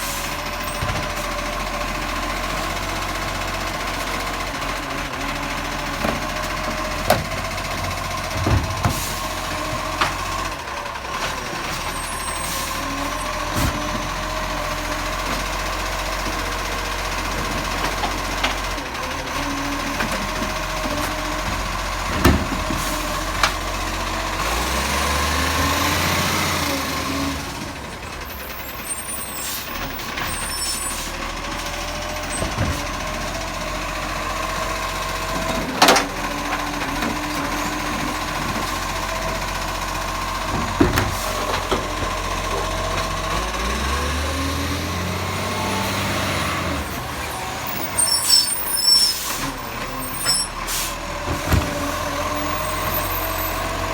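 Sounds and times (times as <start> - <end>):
garbage truck engine running: 0.0 - 53.9
sharp clunks and knocks: 6.0 - 10.5, 19.9 - 23.6, 40.4 - 43.4.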